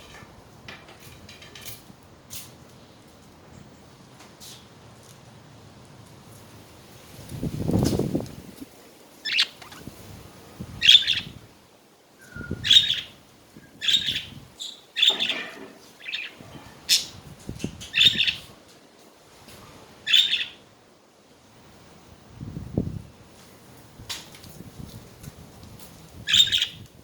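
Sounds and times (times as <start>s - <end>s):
budgerigars chirping: 9.2s - 9.9s, 10.8s - 11.3s, 12.6s - 13.1s, 13.8s - 15.4s, 20.1s - 20.6s, 26.3s - 26.8s.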